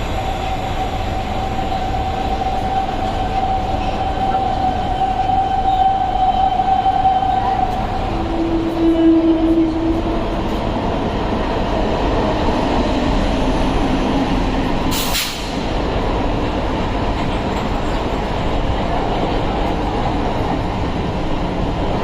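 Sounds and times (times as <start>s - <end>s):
electric train rumbling on track: 0.0s - 22.0s
brief hiss: 14.9s - 15.6s.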